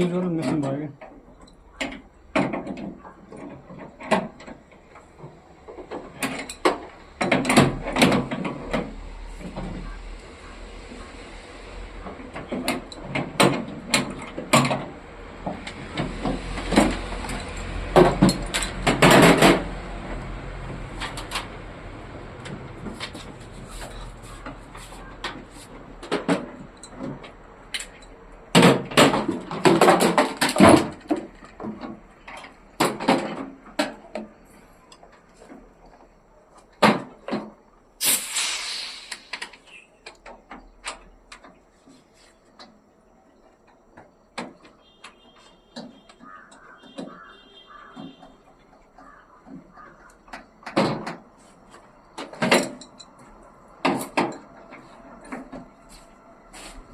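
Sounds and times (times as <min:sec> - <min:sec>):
tools and parts clattering: 0:00.3 - 0:10.0, 0:12.0 - 0:21.7, 0:22.4 - 0:37.6, 0:47.9 - 0:56.2.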